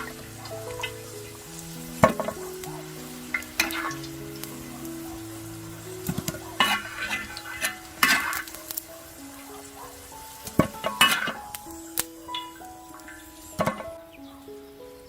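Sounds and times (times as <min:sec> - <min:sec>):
meat sizzling on griddle: 0:00.0 - 0:13.7
soft background music: 0:00.0 - 0:15.0
metal utensil scraping iron: 0:06.6 - 0:08.5.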